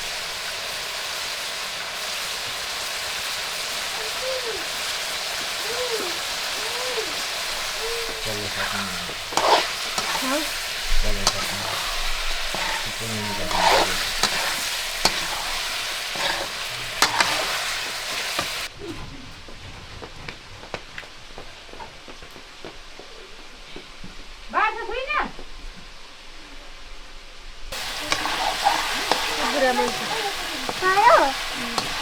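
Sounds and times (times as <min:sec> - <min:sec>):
chicken sizzling in a pan: 0:00.0 - 0:18.8, 0:27.7 - 0:32.0
utensil knocking and scraping pan: 0:07.9 - 0:18.6, 0:27.8 - 0:32.0.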